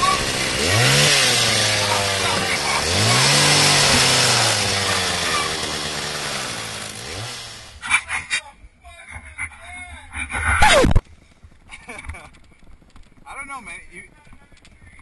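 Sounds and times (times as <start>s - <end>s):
two-stroke chainsaw revving: 0.0s - 7.9s.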